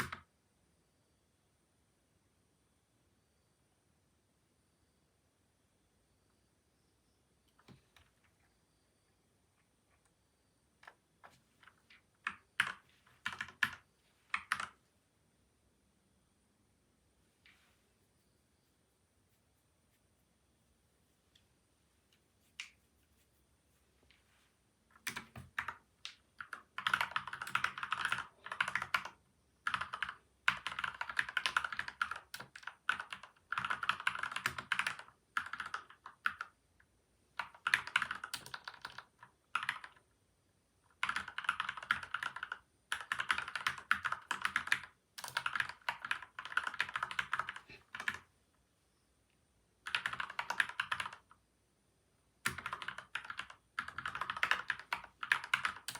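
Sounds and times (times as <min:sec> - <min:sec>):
mechanical keyboard typing: 0:00.0 - 0:00.3, 0:10.8 - 0:14.8, 0:25.0 - 0:36.6, 0:37.4 - 0:40.1, 0:40.9 - 0:48.2, 0:49.8 - 0:51.4, 0:52.4 - 0:55.9.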